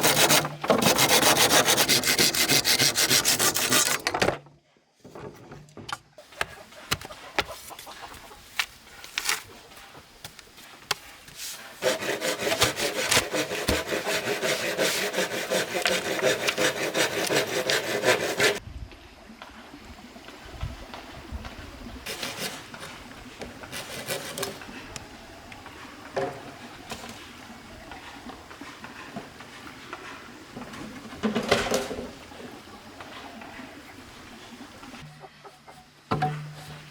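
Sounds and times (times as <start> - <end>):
saw cutting bamboo: 0.0 - 4.1, 11.8 - 18.6, 22.1 - 24.7
scrapes on wood: 0.0 - 4.1, 11.3 - 18.6, 23.7 - 24.6.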